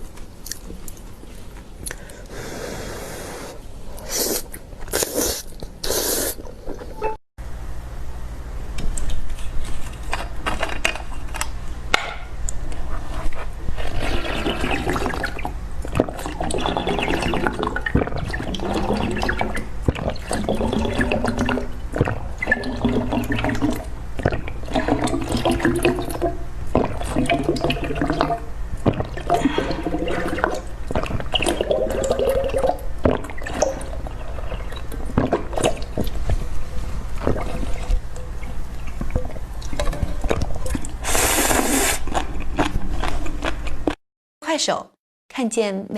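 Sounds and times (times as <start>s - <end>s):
slurping and sipping liquid: 2.0s - 7.0s, 12.8s - 44.0s.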